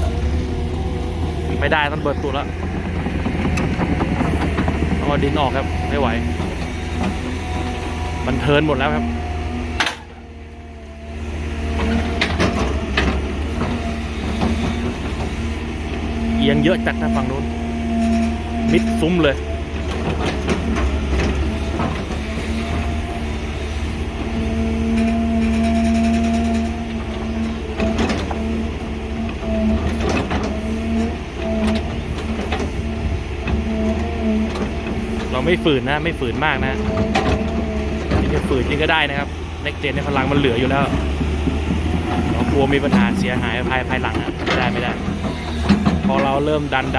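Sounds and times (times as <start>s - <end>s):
excavator diesel engines under load: 0.0s - 46.9s
steady hydraulic whine: 0.0s - 46.9s
metal clanks and knocks: 1.5s - 7.7s, 36.5s - 38.6s, 39.9s - 46.9s.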